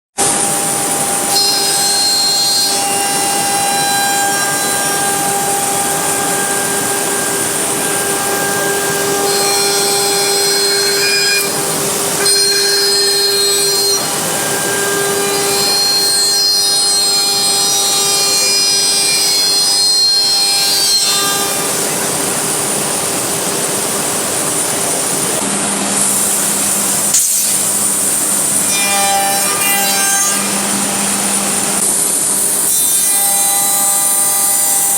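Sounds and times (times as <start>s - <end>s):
bit cutting wood hiss: 0.2s - 25.4s, 26.1s - 34.9s
router spindle whining: 0.2s - 25.5s.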